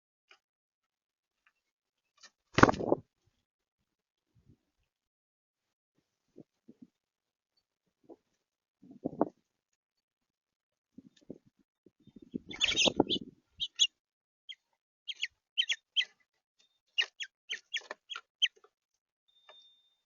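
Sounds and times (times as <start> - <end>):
songbirds chip calls: 12.0 - 13.9, 14.5 - 18.6.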